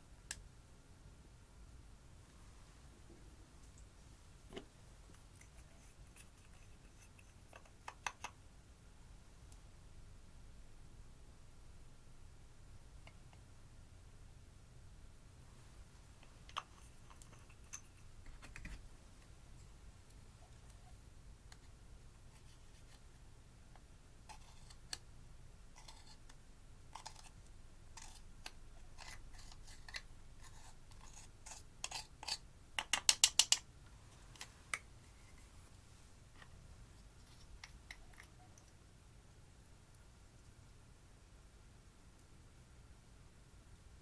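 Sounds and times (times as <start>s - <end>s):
small clicks and scrapes: 4.5s - 8.4s, 15.6s - 21.7s, 22.3s - 25.1s, 25.7s - 38.8s.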